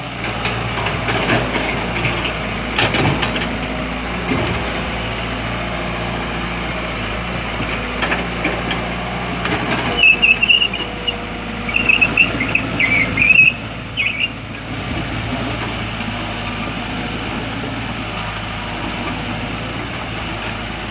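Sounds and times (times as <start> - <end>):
diesel machinery running: 0.0 - 20.9
high-pitched squeals: 9.9 - 14.4.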